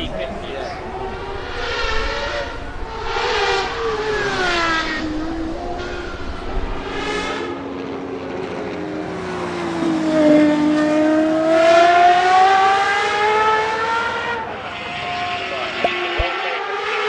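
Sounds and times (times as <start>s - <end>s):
engine revving at high revs: 0.0s - 7.4s.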